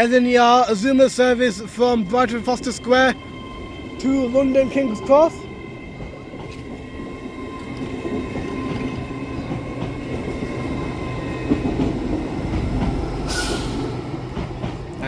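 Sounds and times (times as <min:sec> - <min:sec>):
wheels rumbling on rail: 0:00.4 - 0:15.0.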